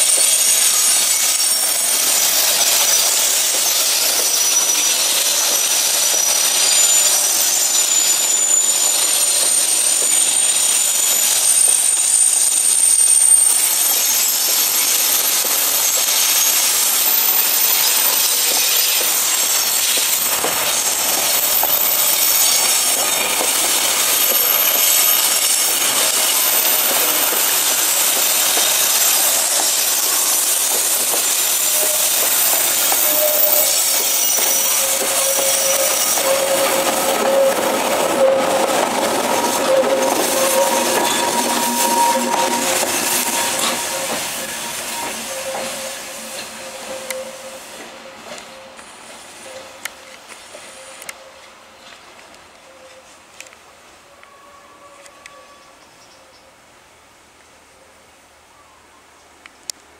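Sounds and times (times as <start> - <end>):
wheels running on rails: 0.0 - 12.0, 13.1 - 47.3
high-pitched wheel squeals: 0.0 - 48.8.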